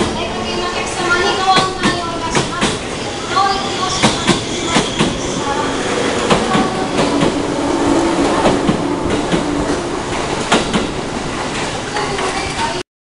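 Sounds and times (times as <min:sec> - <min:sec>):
train rolling rumble: 0:00.0 - 0:12.8
train wheels clacking on rail joints: 0:00.0 - 0:12.8
low hum: 0:04.5 - 0:11.4.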